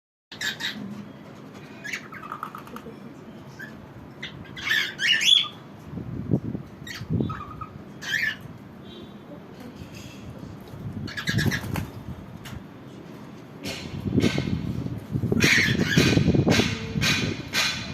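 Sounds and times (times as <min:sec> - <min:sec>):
birds squawking and chirping: 0:00.3 - 0:05.8, 0:06.8 - 0:08.6, 0:10.9 - 0:12.1, 0:15.2 - 0:17.9.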